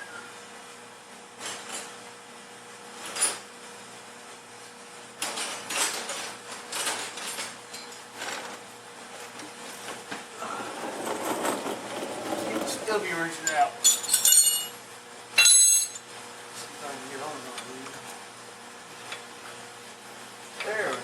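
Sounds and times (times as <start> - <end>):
hand tools knocking and clattering: 10.8 - 14.7.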